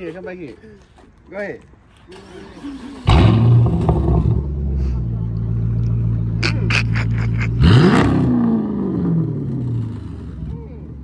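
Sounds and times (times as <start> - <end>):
car engine starting and idling: 2.1 - 10.6
car engine revving: 5.4 - 10.5.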